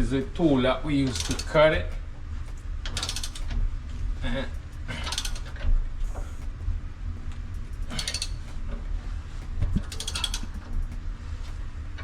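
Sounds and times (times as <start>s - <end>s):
pipe cutter ratchet clicks: 0.0s - 2.1s, 2.8s - 3.6s, 4.5s - 6.6s, 7.5s - 8.8s, 9.8s - 11.0s
low rumble: 0.0s - 12.0s.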